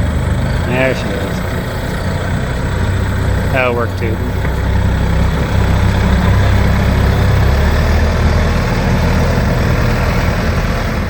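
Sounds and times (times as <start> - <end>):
tractor engine running at low speed: 0.0 - 11.0.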